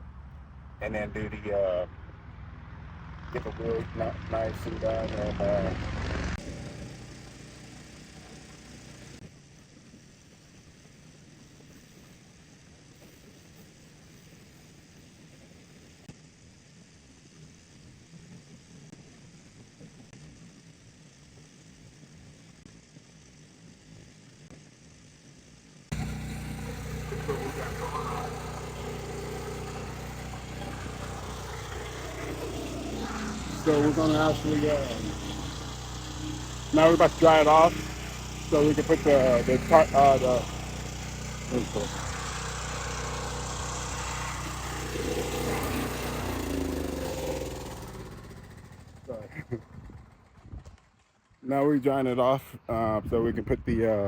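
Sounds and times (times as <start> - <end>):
engine idling: 0.0 - 9.2, 25.9 - 50.6
blower motor running: 0.0 - 51.2.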